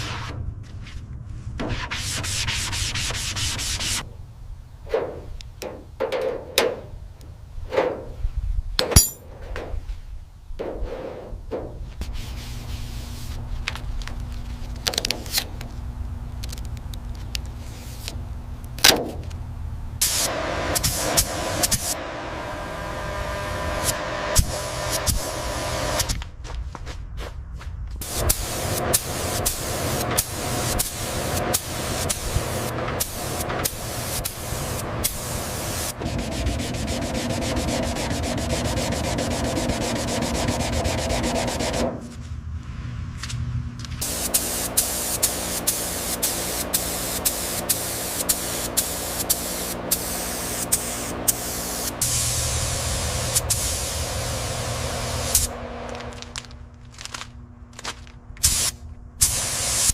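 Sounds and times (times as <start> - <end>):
steady low hum: 0.0 - 59.6
sanding rasp with sharp ticks: 36.1 - 41.8.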